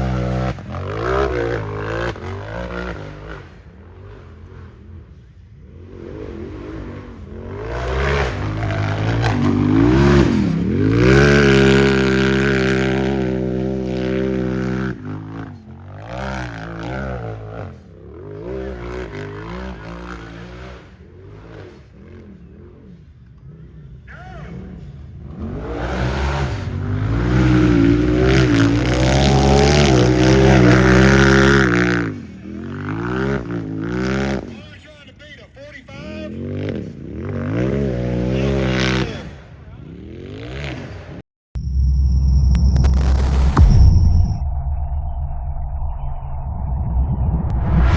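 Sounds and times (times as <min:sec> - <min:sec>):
engine revving hard: 0:00.0 - 0:04.8, 0:05.7 - 0:22.9, 0:24.5 - 0:34.6.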